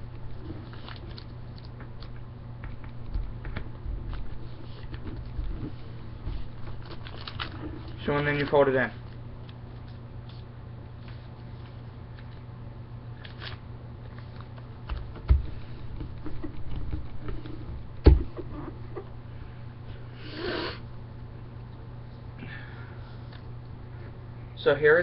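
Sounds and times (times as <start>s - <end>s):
paper rustling and crinkling: 0.3s - 12.5s, 13.2s - 17.6s.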